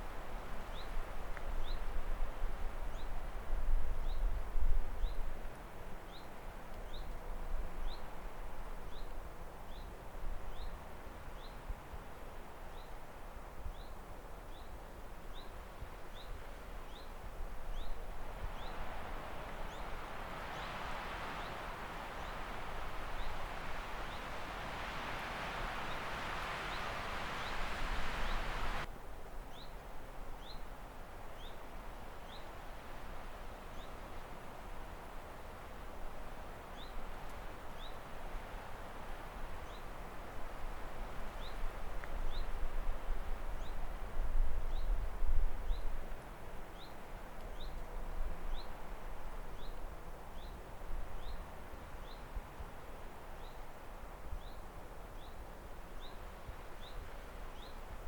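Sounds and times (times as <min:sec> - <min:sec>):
outdoor ambience hiss: 0:00.0 - 0:58.0
steady rushing hiss: 0:19.3 - 0:28.9.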